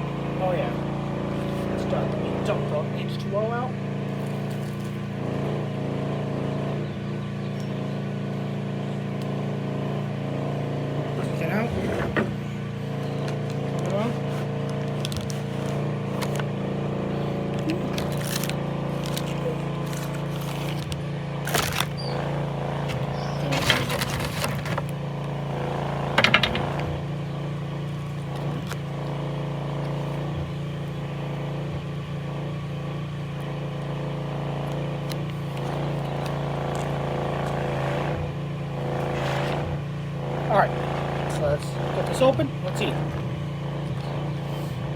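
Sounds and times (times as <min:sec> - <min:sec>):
steady low hum: 0:00.0 - 0:44.9
plastic pouch crinkling: 0:17.7 - 0:22.1, 0:23.0 - 0:25.0.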